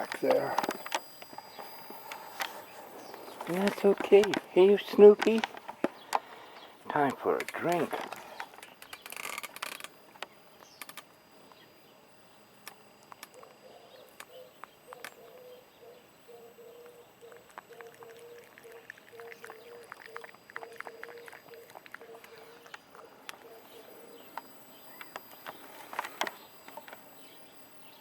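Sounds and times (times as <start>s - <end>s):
cat lapping water: 17.2s - 23.1s.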